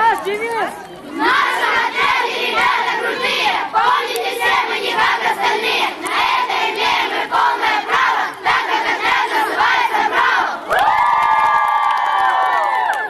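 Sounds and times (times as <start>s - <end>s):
children shouting and chanting: 1.1s - 10.6s.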